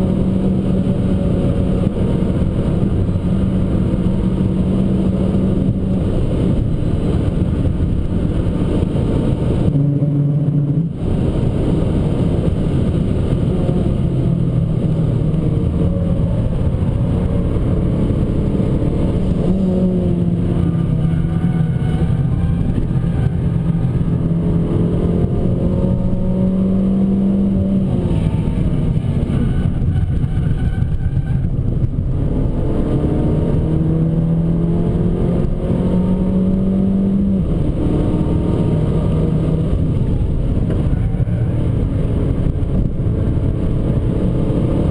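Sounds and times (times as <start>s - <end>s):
car engine pulling hard: 0.0s - 44.9s.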